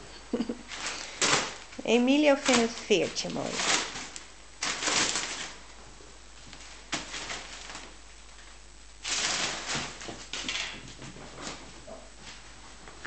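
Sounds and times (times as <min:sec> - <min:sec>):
kittens rustling and scratching: 0:00.4 - 0:13.0.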